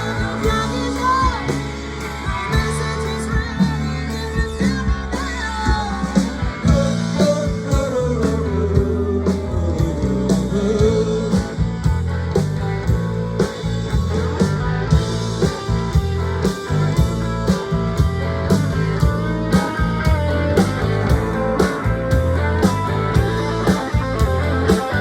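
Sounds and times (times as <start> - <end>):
bass: 0.0 - 25.0
steady drum beat: 0.0 - 25.0
lead guitar solo: 13.1 - 25.0.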